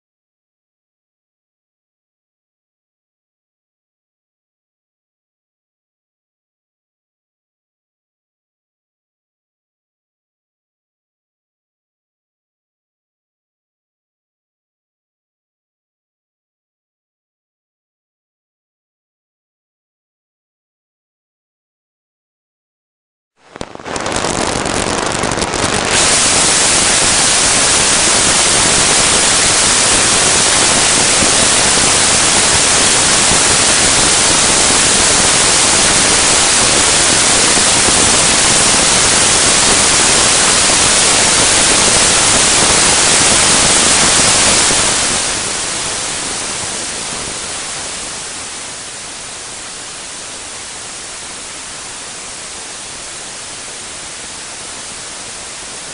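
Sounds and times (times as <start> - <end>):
steady ultrasonic hiss: 23.5 - 55.9.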